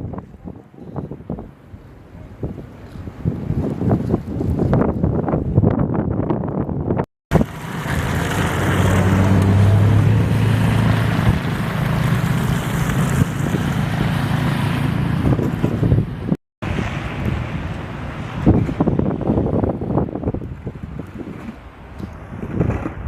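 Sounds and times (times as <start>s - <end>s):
wind buffeting microphone: 0.0s - 23.0s
vehicle engine hum: 7.3s - 23.0s.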